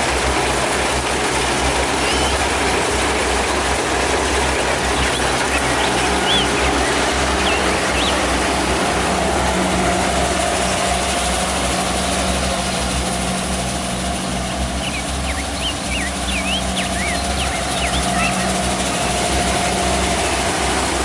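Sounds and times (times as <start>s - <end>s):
combine harvester engine hum: 0.0s - 21.0s
threshing machinery noise: 0.0s - 21.0s.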